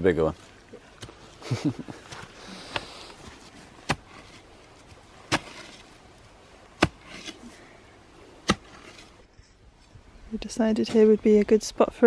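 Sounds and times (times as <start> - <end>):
digging tool striking hard ground: 3.8 - 5.9, 6.7 - 7.4, 8.4 - 9.2.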